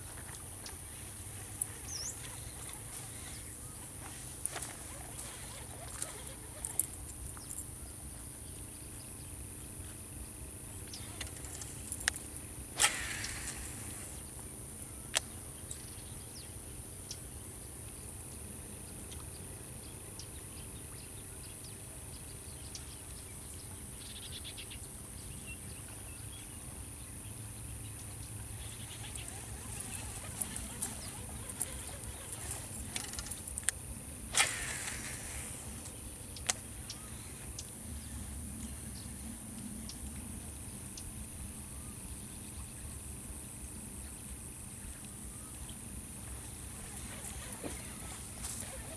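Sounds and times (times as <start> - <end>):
brief hiss: 12.8 - 14.3, 34.3 - 36.0
high-pitched insect drone: 28.5 - 36.2, 46.2 - 48.9
sharp clicks: 29.0 - 36.7.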